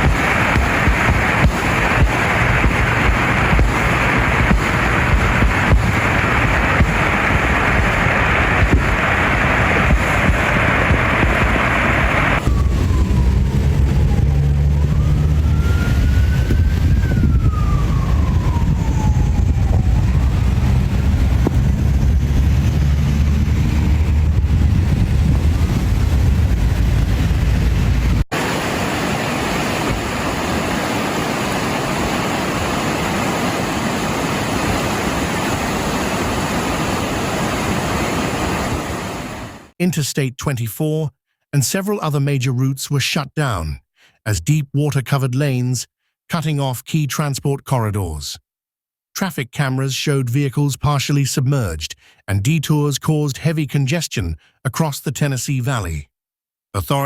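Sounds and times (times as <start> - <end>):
rushing floodwater: 0.0 - 16.4, 17.0 - 24.3, 28.3 - 39.7
emergency siren wailing: 0.2 - 31.3
low rumble: 0.6 - 28.3.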